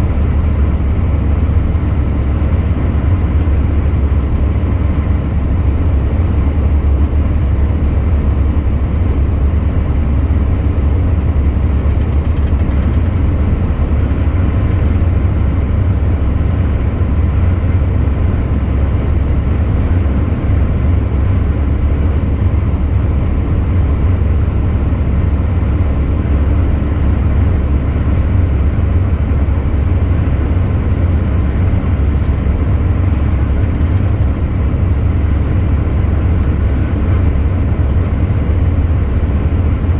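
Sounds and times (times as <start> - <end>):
truck engine and road drone: 0.0 - 39.9.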